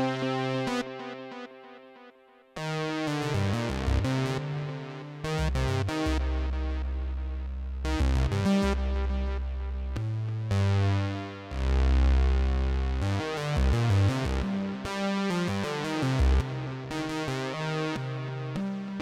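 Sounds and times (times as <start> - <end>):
deep synth bass: 3.2 - 14.8.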